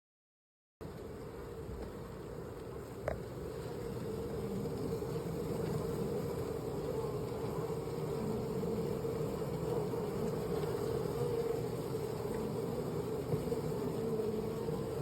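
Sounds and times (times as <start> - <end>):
bees buzzing: 0.9 - 15.0.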